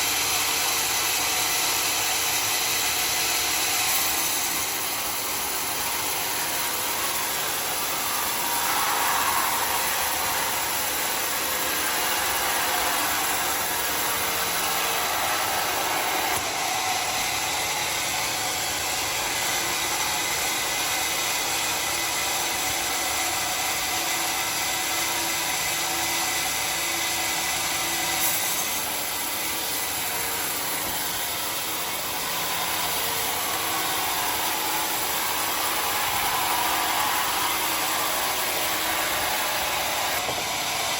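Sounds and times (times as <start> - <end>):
sawmill sawing wood: 0.0 - 40.9.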